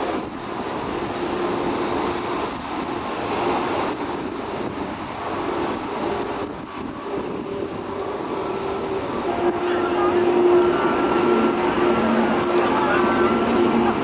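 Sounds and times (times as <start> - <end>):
jet engines running: 0.0 - 14.0
humming tone: 6.9 - 14.0.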